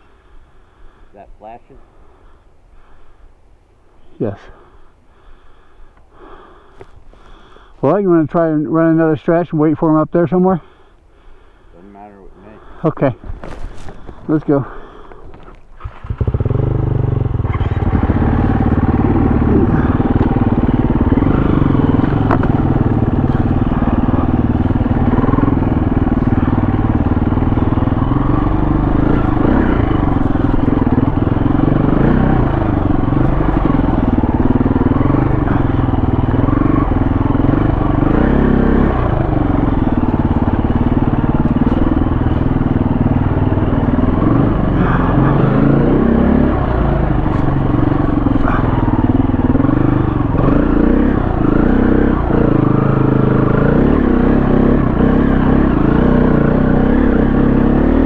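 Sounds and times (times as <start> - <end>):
dirt bike engine revving: 12.6 - 15.1, 15.8 - 58.0.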